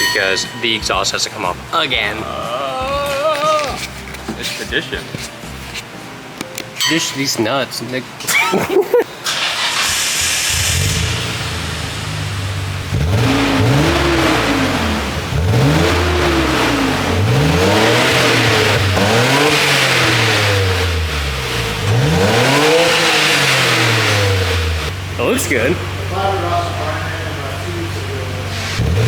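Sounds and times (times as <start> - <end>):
car engine idling and revving: 9.3 - 29.0.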